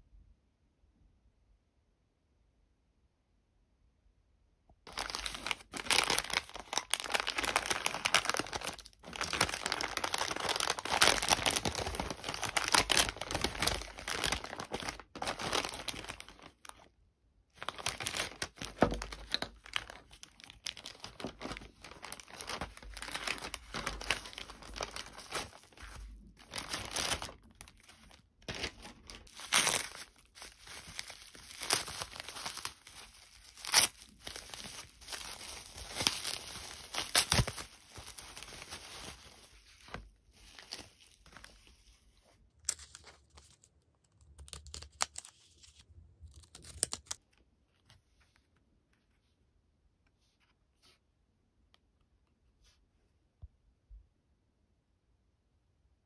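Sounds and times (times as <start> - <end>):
packaging crinkling and tearing: 4.9 - 16.9, 17.5 - 42.0, 42.6 - 47.3.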